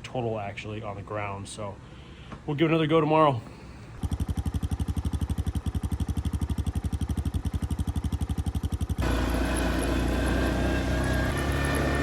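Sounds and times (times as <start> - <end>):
atv engine: 4.0 - 12.0.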